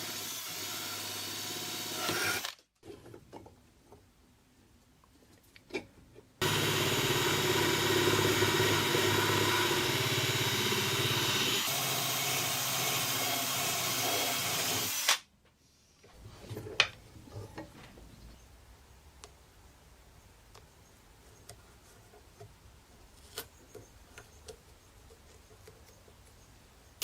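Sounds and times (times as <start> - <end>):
power tool running: 0.0 - 2.6, 6.4 - 15.2.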